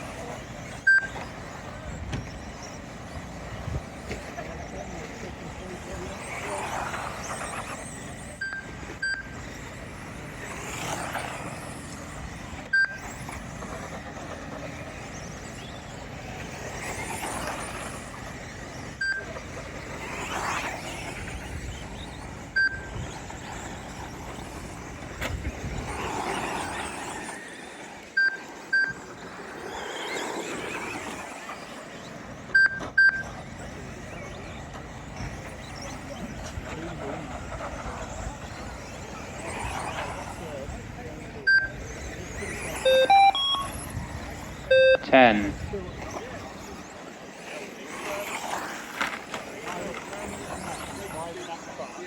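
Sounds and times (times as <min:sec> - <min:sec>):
rc truck motors whining: 0:00.0 - 0:52.0
short high timing beeps: 0:00.9 - 0:01.2, 0:32.6 - 0:33.3, 0:41.5 - 0:41.8, 0:42.8 - 0:43.9, 0:44.7 - 0:45.4.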